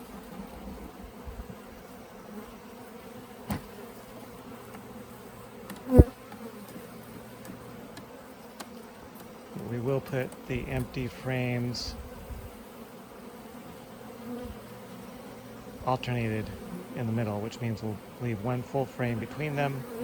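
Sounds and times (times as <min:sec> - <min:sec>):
honeybees buzzing: 0:00.0 - 0:20.0
loud thump: 0:03.5 - 0:03.7.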